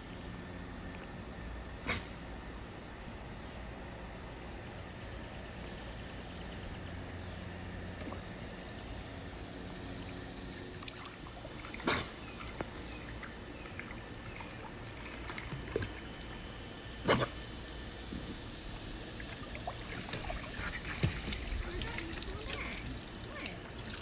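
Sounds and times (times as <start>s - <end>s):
water trickling: 18.8s - 24.0s.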